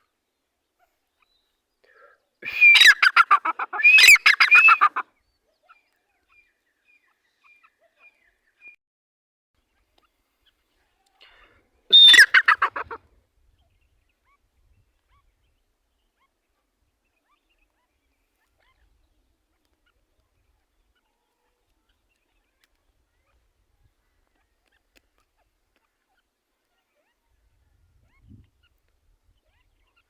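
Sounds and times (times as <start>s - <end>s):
francolin call: 2.4s - 5.0s, 11.9s - 13.0s.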